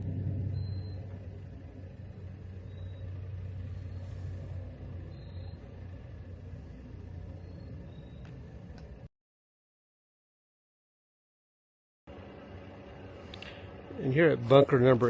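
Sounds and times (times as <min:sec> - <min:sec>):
car driving low rumble: 0:00.0 - 0:09.1, 0:12.1 - 0:15.0.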